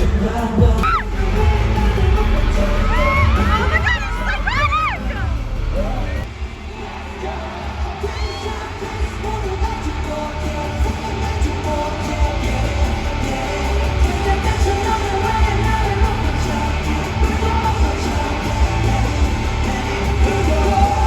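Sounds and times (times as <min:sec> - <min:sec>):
crowd yelling: 0:00.0 - 0:21.0
pop song with heavy bass beat: 0:00.0 - 0:21.0.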